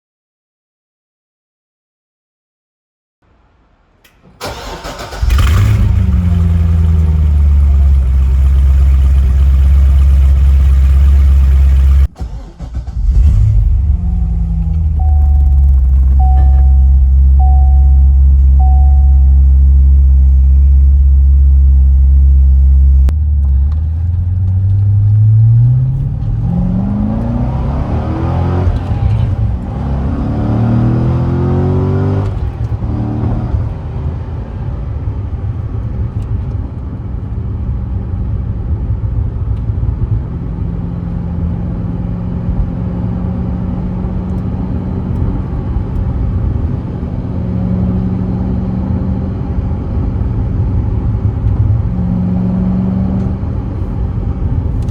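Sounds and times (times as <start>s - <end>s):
car engine accelerating: 4.4s - 38.7s.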